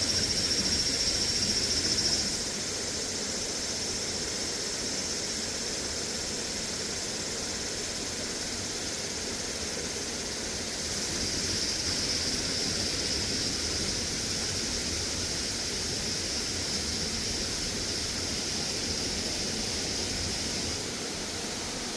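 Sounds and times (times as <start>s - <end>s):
high insect buzz: 10.6s - 21.9s.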